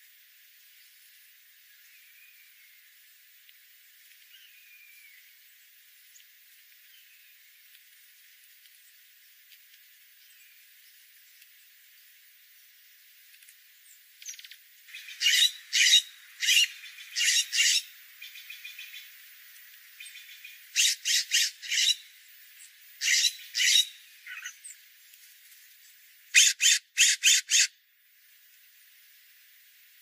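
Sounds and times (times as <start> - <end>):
bird giving harsh high-pitched calls: 15.0 - 17.9, 20.8 - 22.0, 23.0 - 24.6, 26.4 - 27.7.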